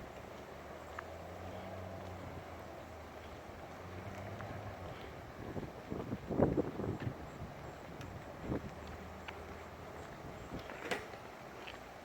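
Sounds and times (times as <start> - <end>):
wind buffeting microphone: 1.8 - 11.4.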